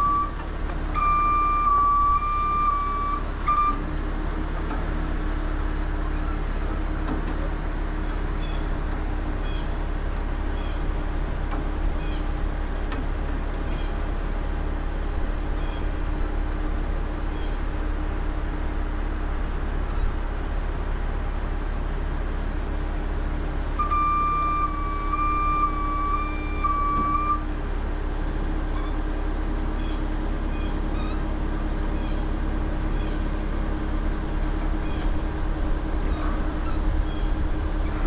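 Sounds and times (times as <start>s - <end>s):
diesel truck engine idling: 0.0s - 38.0s
high steady tone: 23.8s - 27.5s.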